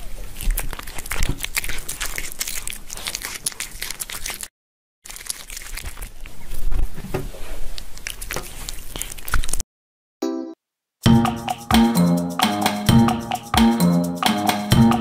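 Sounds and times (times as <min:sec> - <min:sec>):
paper or plastic crinkling: 0:00.2 - 0:04.5, 0:05.1 - 0:09.6.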